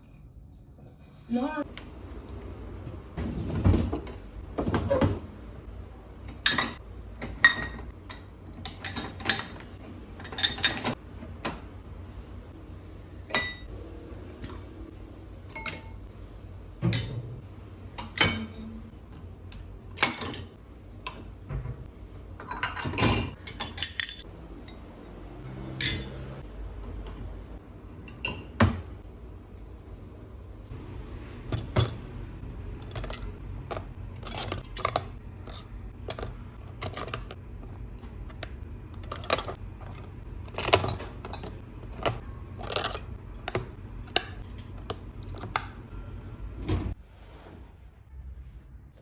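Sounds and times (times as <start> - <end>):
dishes and cutlery clinking: 6.3 - 11.0, 15.5 - 16.1, 18.0 - 18.9, 19.9 - 21.3, 22.4 - 26.4, 30.7 - 47.0.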